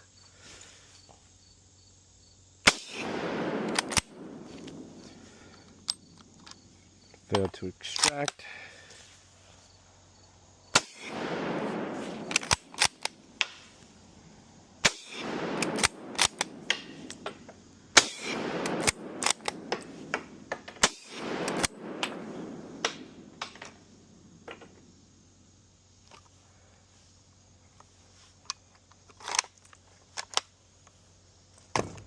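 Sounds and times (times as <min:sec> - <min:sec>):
rifle shots with echo: 0:02.7 - 0:05.5, 0:10.8 - 0:13.6, 0:14.8 - 0:23.8
rifle bolt clicks: 0:03.6 - 0:04.8, 0:07.4 - 0:08.2, 0:12.2 - 0:13.6, 0:15.6 - 0:17.3, 0:18.5 - 0:19.9.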